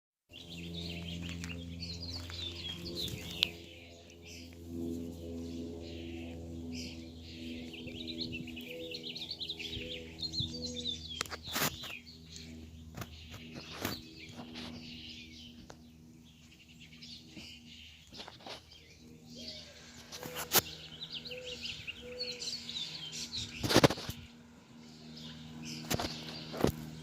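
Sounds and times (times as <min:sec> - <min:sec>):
small birds chirping: 0:00.3 - 0:27.0
steady low hum: 0:00.3 - 0:27.0.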